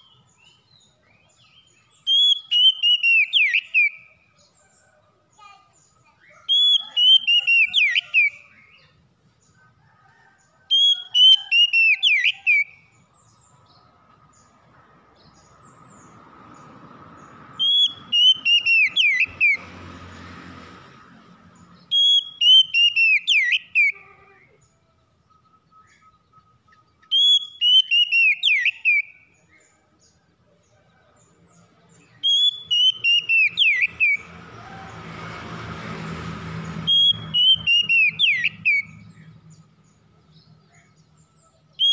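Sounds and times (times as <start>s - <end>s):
bird whistling song: 0.0s - 4.5s, 6.0s - 9.0s, 10.7s - 13.5s, 17.5s - 19.6s, 21.8s - 24.0s, 25.2s - 29.4s, 32.0s - 34.3s, 36.8s - 39.2s.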